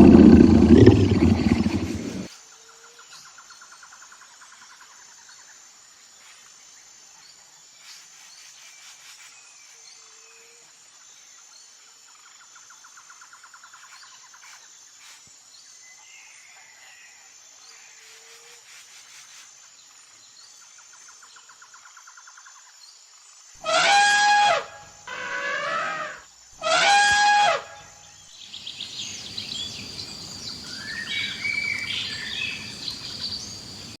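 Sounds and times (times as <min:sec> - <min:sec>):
animal calling loudly: 0:00.0 - 0:02.3
birds chirping: 0:00.0 - 0:02.3, 0:28.4 - 0:34.0
insects trilling: 0:00.0 - 0:02.4, 0:28.4 - 0:34.0.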